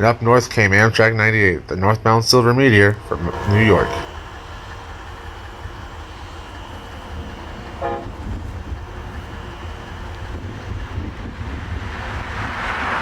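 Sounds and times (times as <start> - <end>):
train rumbling: 0.0 - 13.0
distant train horn toot: 2.6 - 11.3.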